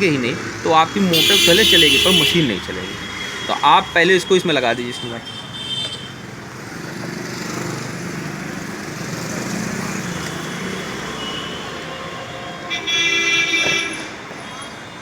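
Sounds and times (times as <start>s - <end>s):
road traffic passing: 0.0s - 15.0s
vehicle horn: 1.1s - 3.6s, 12.7s - 14.1s.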